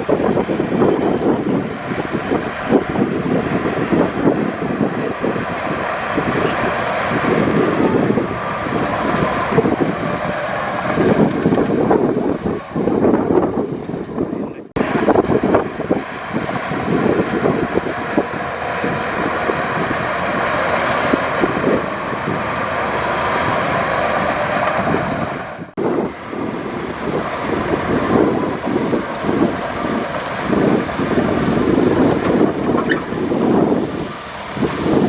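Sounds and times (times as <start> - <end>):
diesel machinery engine: 0.0 - 35.0.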